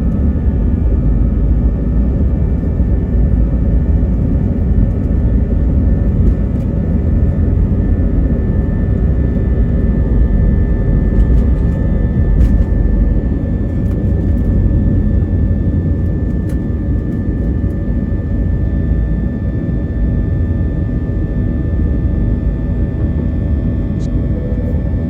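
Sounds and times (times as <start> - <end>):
steady whining tones: 0.0 - 19.3
jet engines rumbling in cabin: 0.0 - 25.0.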